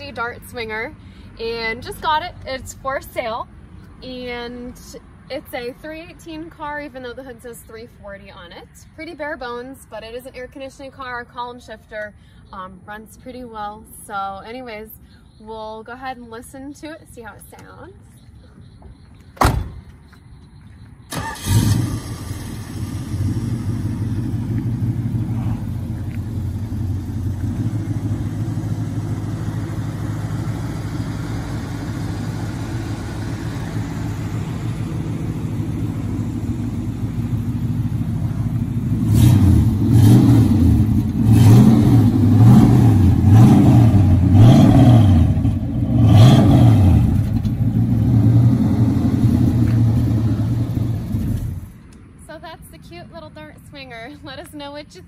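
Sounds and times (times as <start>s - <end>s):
short sharp thump: 19.4s - 20.0s
car engine starting and idling: 21.0s - 51.9s
engine revving: 21.1s - 51.7s.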